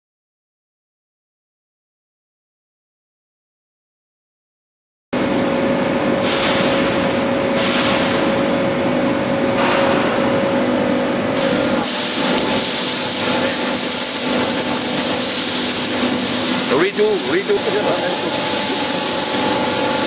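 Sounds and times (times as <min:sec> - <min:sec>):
machine hum with steady tone: 0:05.2 - 0:20.0
air hiss bursts: 0:11.4 - 0:20.0.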